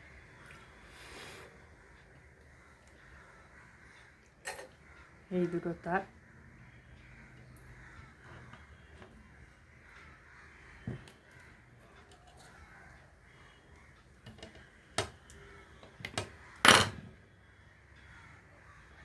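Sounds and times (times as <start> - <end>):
crows cawing: 0.0 - 19.0
sharp knocks and clicks: 14.2 - 15.3.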